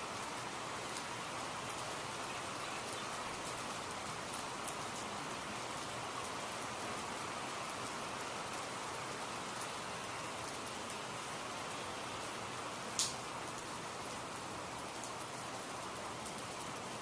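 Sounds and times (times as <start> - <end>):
steady rain hiss: 0.0 - 17.0
raindrop ticks: 12.9 - 13.6.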